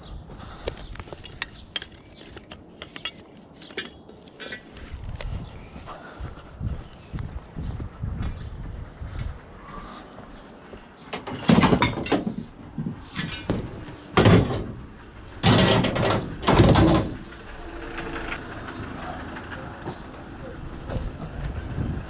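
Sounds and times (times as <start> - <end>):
scrap metal clattering and scraping: 1.1 - 4.9, 11.1 - 18.9.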